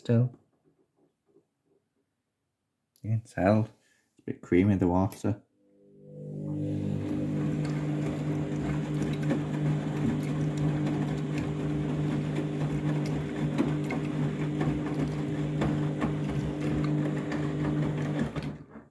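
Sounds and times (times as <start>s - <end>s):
washing machine motor humming: 6.0s - 18.9s.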